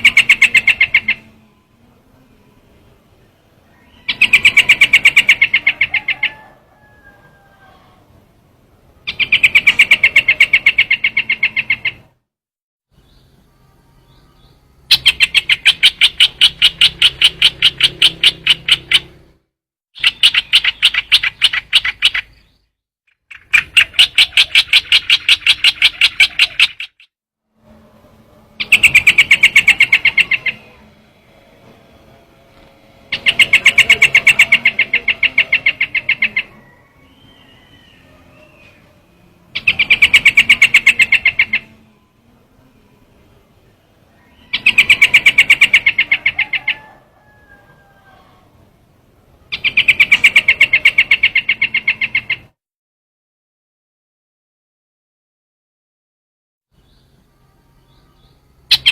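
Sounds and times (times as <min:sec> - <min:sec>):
bird rattling trill: 0:00.0 - 0:01.2, 0:04.0 - 0:06.9, 0:09.1 - 0:12.0, 0:14.9 - 0:19.2, 0:20.0 - 0:22.4, 0:23.2 - 0:27.1, 0:28.6 - 0:30.7, 0:33.1 - 0:36.5, 0:39.6 - 0:41.6, 0:44.5 - 0:46.9.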